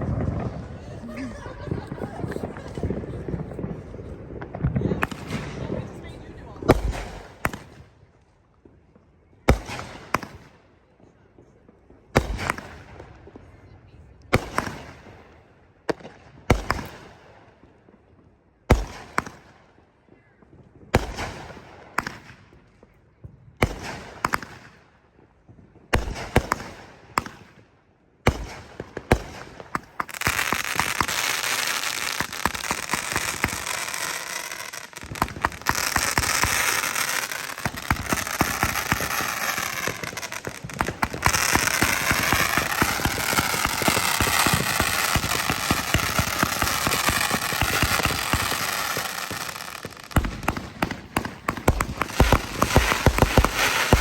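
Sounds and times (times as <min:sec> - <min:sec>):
fireworks booming: 0:00.0 - 0:07.8, 0:28.3 - 0:54.0
crackling firework barrage: 0:00.0 - 0:54.0.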